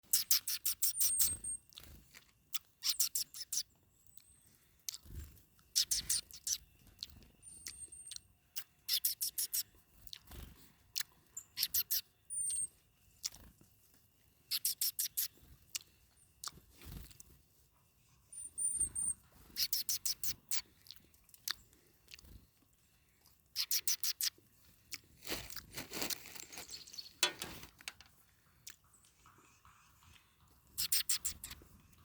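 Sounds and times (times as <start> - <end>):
bird pecking and crunching seed: 0.1 - 4.3, 4.9 - 12.6, 13.2 - 17.4, 19.2 - 31.8
high-pitched squeaks: 18.4 - 20.6, 30.8 - 31.6.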